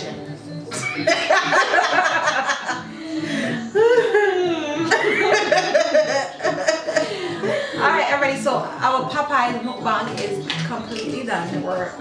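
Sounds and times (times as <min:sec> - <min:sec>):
women laughing: 0:00.8 - 0:08.1.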